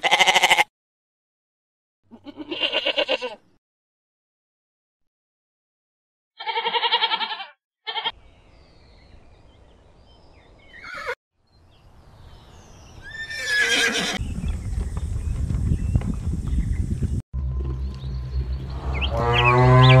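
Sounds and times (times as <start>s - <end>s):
sheep bleating: 0.0s - 0.7s, 2.1s - 3.4s, 6.4s - 8.1s
horse whinnying: 10.7s - 11.2s, 13.0s - 14.2s.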